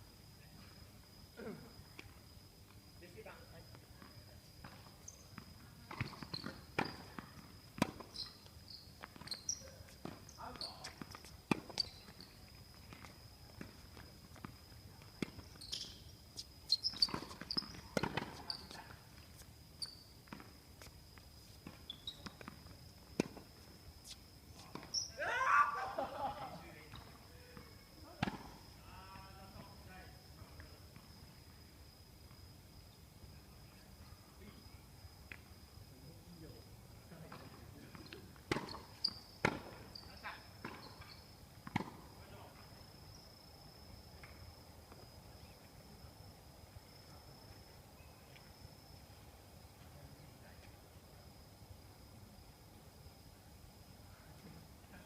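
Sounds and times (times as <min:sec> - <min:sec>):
faint high whine: 0:00.0 - 0:55.0
tennis ball struck and bouncing: 0:17.0 - 0:18.5, 0:28.2 - 0:28.6, 0:38.5 - 0:39.8, 0:41.6 - 0:42.0.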